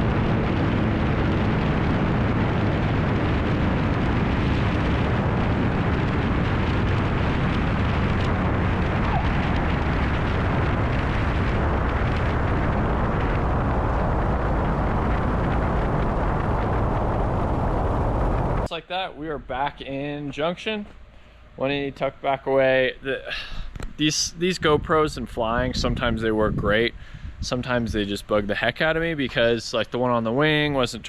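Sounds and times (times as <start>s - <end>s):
propeller plane engine: 0.0s - 18.7s
airflow rushing: 0.0s - 28.5s.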